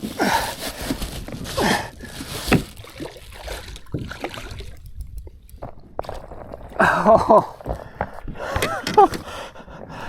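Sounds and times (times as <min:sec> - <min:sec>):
water splashing and sloshing: 0:00.0 - 0:09.2
knocks against kayak hull: 0:02.5 - 0:02.8.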